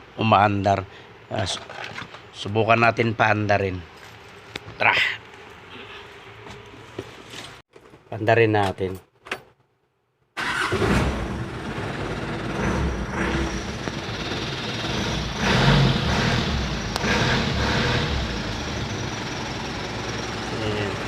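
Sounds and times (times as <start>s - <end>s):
diesel truck engine idling: 11.1s - 21.0s.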